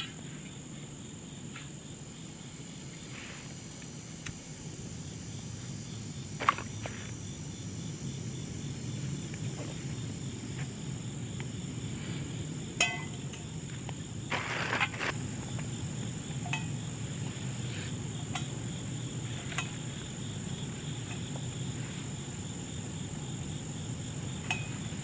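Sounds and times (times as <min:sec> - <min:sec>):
insects trilling: 0:00.0 - 0:25.0
low steady rush: 0:07.0 - 0:25.0.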